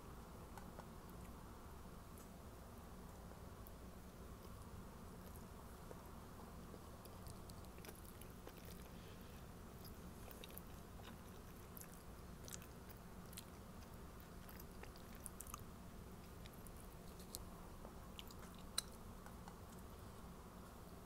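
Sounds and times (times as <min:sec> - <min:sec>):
low steady hum: 0:00.0 - 0:21.0
person chewing sandwich: 0:04.4 - 0:19.9.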